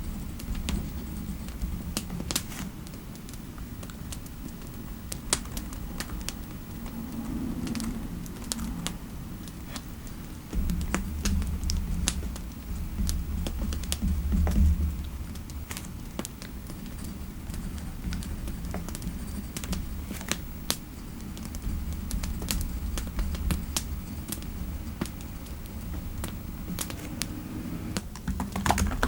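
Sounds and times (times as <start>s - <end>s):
low steady rumble: 3.6s - 28.2s
typing on computer keyboard: 28.0s - 29.0s.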